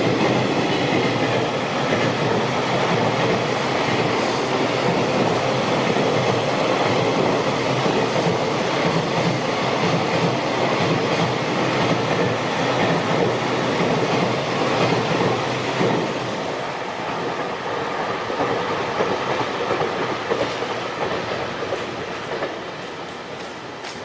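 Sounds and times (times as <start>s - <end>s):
train wagons rolling over rails: 0.0s - 24.0s.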